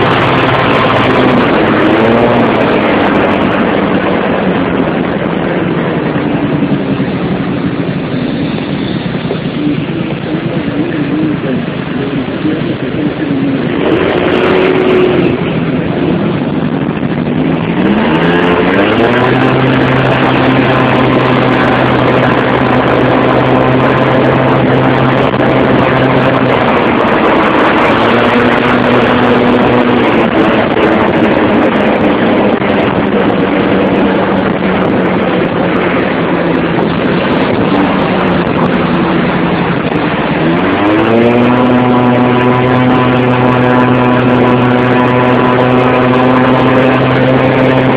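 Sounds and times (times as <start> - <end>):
motorcycle engine accelerating: 0.0 - 47.9
traffic and road noise: 0.0 - 47.9.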